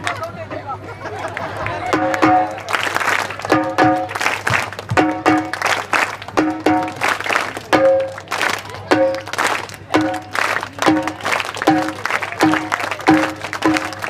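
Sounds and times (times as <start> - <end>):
group clapping: 1.2 - 14.0
frame drum beats: 1.9 - 2.7, 3.5 - 5.7, 6.3 - 14.0.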